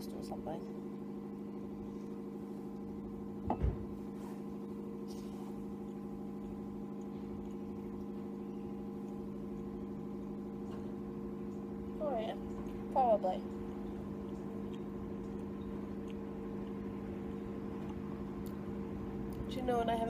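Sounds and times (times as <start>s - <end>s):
dull thump: 3.4s - 4.0s.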